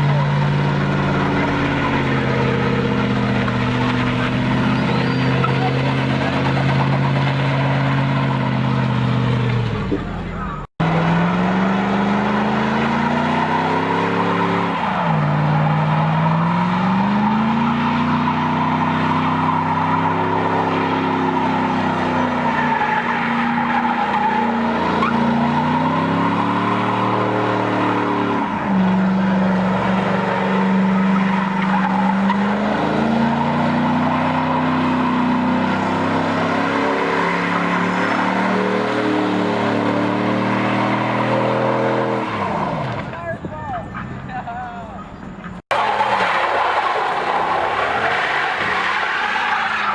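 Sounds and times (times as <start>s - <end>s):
vehicle engine under load: 0.0s - 49.9s
high screeching noise: 1.1s - 7.1s.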